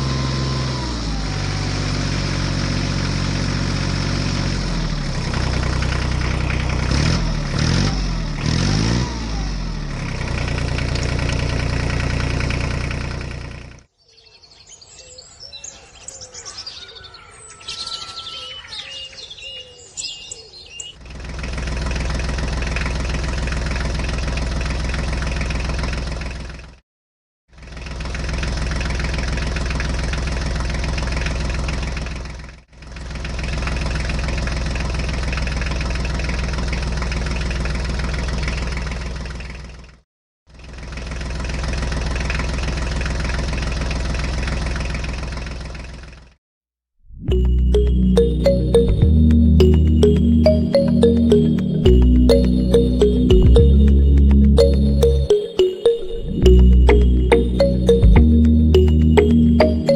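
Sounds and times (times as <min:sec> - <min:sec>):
tractor engine running: 0:00.0 - 0:13.9, 0:21.0 - 0:26.7, 0:27.6 - 0:39.8
birds chirping: 0:14.0 - 0:21.0.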